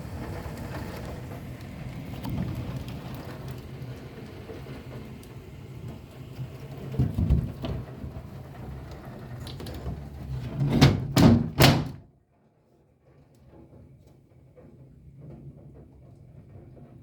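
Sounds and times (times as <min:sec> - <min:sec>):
rain on window glass: 0:00.0 - 0:10.6, 0:12.6 - 0:17.0
loud knocks: 0:10.4 - 0:12.0
thump: 0:10.5 - 0:12.0.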